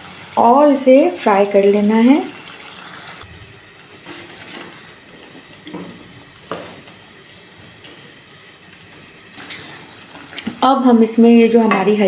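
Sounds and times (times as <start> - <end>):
curry sizzling in a pot: 0.0 - 12.0.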